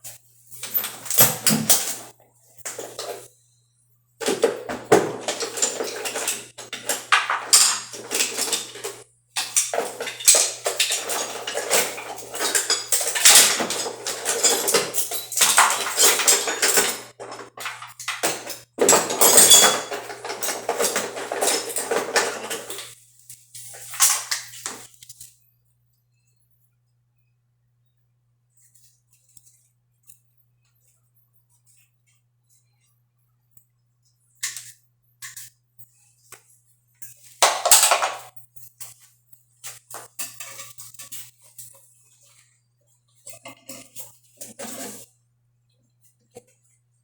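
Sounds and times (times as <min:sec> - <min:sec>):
hard objects clinking and clattering: 0:00.6 - 0:03.3, 0:04.2 - 0:23.0, 0:23.6 - 0:24.9, 0:37.4 - 0:38.4.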